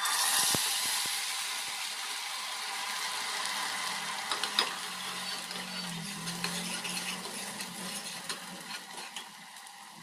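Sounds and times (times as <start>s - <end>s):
gravy sizzling in oil: 0.0s - 10.0s
ladle clinking and scraping pot: 4.3s - 9.4s.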